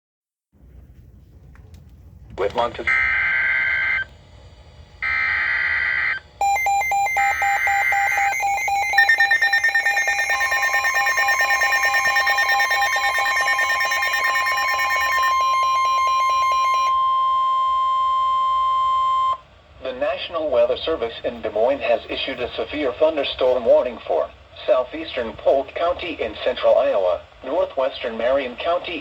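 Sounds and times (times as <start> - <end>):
steady warning alarm tone: 2.8 - 4.1, 5.0 - 19.5
buzzy digital data bursts: 5.0 - 16.9
rapid pulsing alarm beeps: 5.0 - 19.4.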